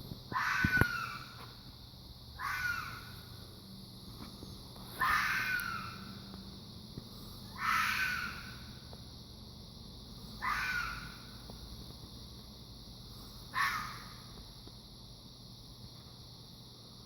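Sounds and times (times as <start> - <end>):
fox calling: 0.3 - 1.4, 2.4 - 3.1, 5.0 - 6.2, 7.5 - 8.7, 10.4 - 11.3, 13.5 - 14.2.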